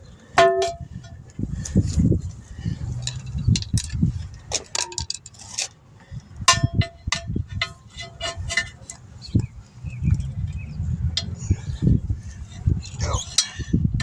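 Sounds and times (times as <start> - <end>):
low handling rumble: 0.0 - 4.7, 5.9 - 14.0
metal tools clinking on wheel rim: 2.7 - 5.8, 6.5 - 13.7.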